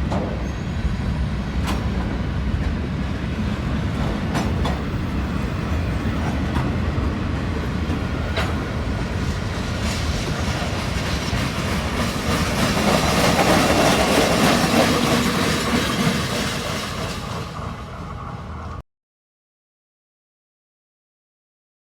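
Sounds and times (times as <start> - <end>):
freight train cars rolling: 0.0 - 18.8
wheels clicking over rail joints: 6.0 - 17.8.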